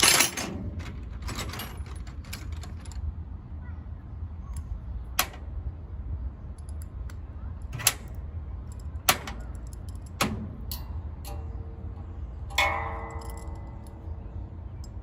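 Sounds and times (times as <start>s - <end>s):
metal tools clinking: 0.0s - 3.0s, 12.5s - 15.0s
steady low rumble: 0.0s - 15.0s
faint metallic ring: 10.7s - 15.0s.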